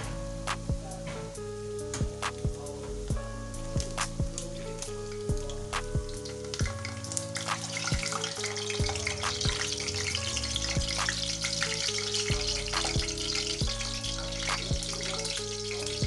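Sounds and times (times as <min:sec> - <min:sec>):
sausages sizzling in hot oil: 0:02.8 - 0:16.0.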